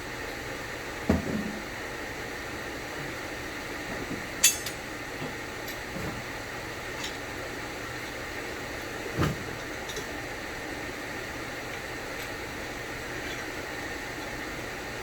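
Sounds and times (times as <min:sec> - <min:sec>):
metal tools clinking: 0:04.4 - 0:04.8.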